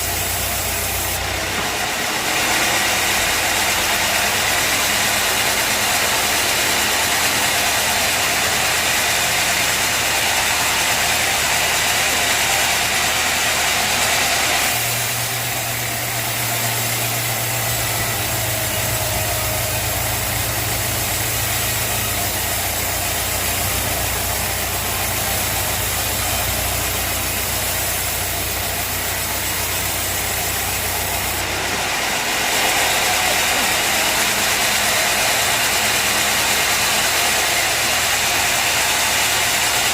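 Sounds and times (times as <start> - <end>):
machinery engine humming: 11.4 - 35.0.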